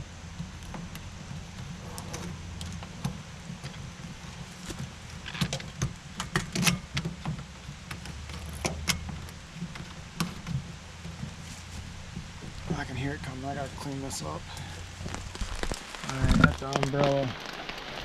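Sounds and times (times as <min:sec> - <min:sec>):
steady low rumble: 0:09.0 - 0:17.2.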